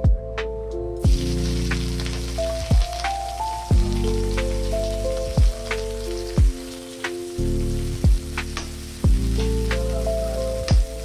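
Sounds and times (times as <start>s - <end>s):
background music with drum thumps: 0.0s - 7.4s, 8.0s - 10.0s, 10.6s - 11.0s
onions sizzling in hot oil: 1.0s - 11.0s.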